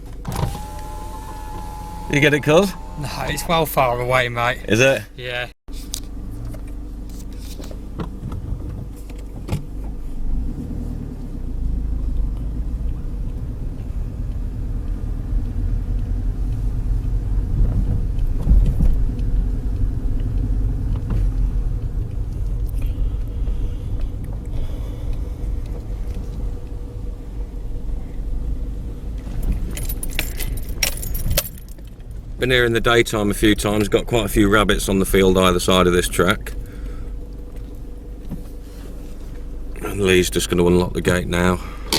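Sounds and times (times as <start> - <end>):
car engine running: 0.0 - 41.9
keys jangling: 29.4 - 32.0.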